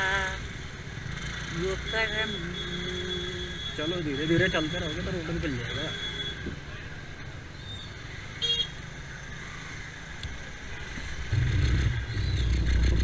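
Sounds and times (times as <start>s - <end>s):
slow road traffic: 0.0s - 13.0s
vehicle engine rumbling close by: 0.0s - 13.0s
vehicle horn beep: 5.6s - 6.4s, 8.4s - 8.8s.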